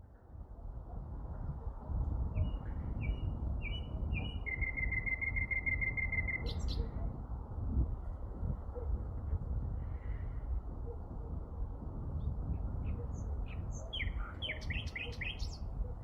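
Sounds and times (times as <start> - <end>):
songbird singing: 2.3 - 7.0, 12.4 - 16.0.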